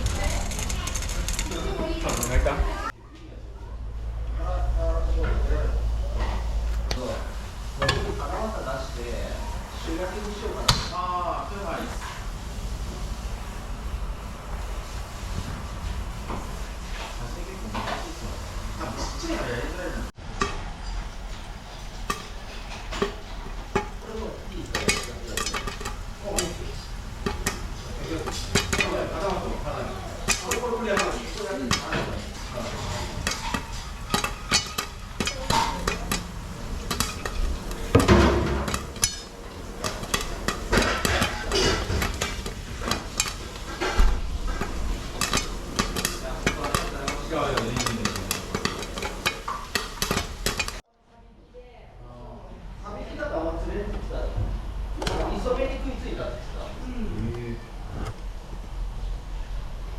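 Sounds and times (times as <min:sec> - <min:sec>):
metal utensils scraping pan: 0:00.0 - 0:02.9, 0:07.0 - 0:11.0, 0:21.7 - 0:50.8
food sizzling in a pan: 0:07.0 - 0:50.8.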